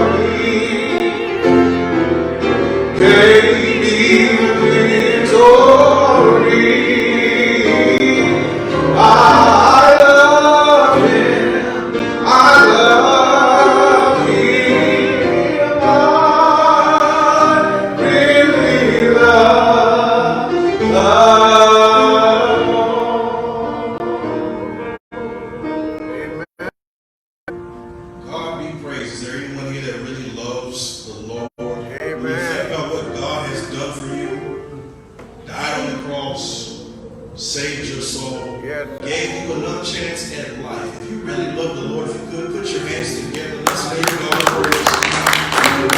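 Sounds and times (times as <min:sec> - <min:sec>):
gospel choir singing: 0:00.0 - 0:01.7, 0:02.4 - 0:24.1, 0:31.7 - 0:34.3.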